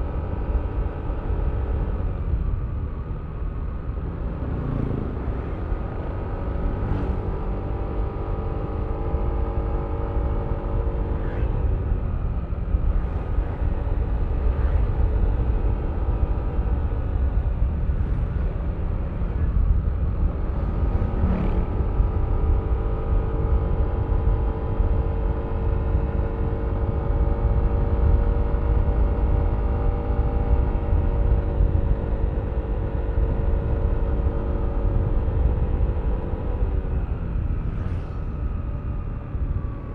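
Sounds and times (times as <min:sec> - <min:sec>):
heavy low rumble: 0:10.8 - 0:22.4.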